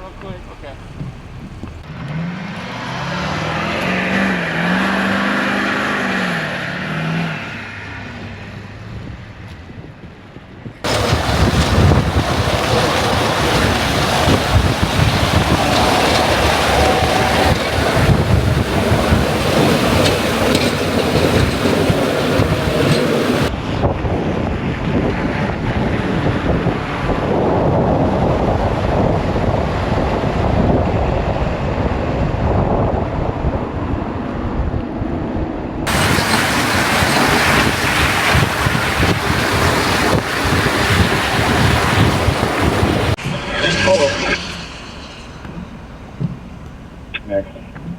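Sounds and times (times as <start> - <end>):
strong wind blowing on microphone: 8.9 - 47.2.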